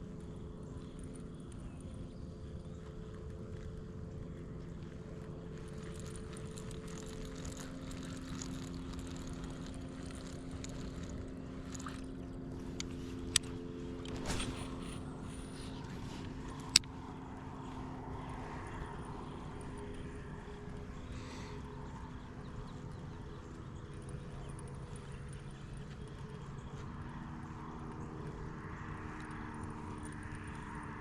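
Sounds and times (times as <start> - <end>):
motor hum: 0.0 - 31.0
low rumble: 2.2 - 22.6.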